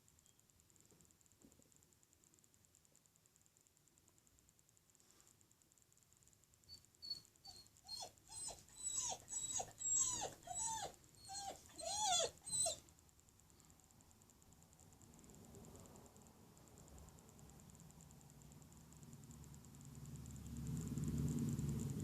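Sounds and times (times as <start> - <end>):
dog whining: 6.7 - 12.8.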